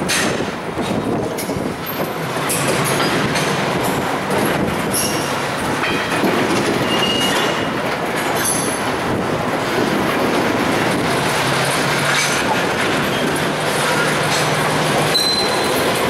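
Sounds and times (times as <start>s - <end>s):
freight train wheels clattering: 0.0s - 16.0s
wheel squealing on rail: 0.0s - 16.0s.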